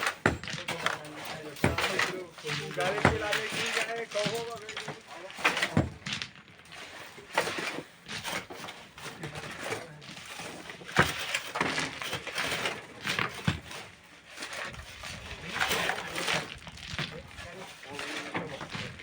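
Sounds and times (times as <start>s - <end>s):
hand tools knocking on stone: 0.0s - 6.1s
tools scraping stone and sand: 0.0s - 19.0s.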